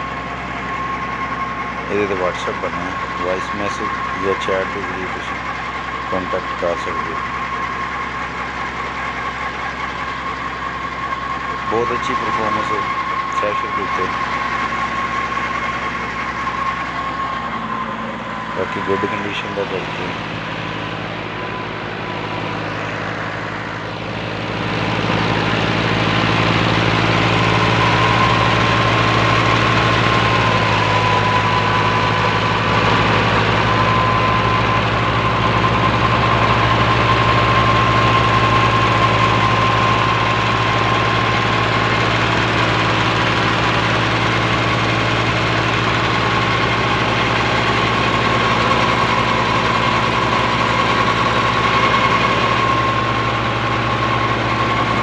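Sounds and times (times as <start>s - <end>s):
steady high whine: 0.0s - 55.0s
tractor diesel engine running: 0.0s - 55.0s.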